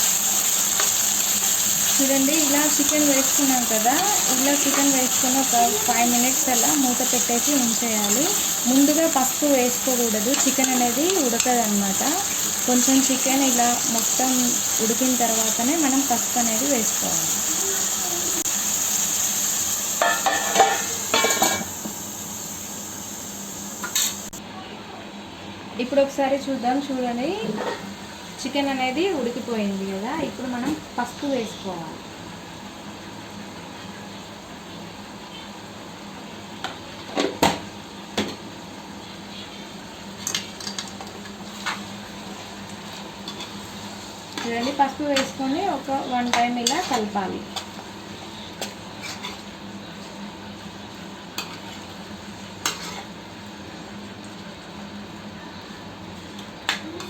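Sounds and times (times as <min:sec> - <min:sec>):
chicken sizzling in a pan: 0:00.0 - 0:24.4, 0:37.4 - 0:57.0
metal utensil clinking on pan: 0:20.0 - 0:21.7.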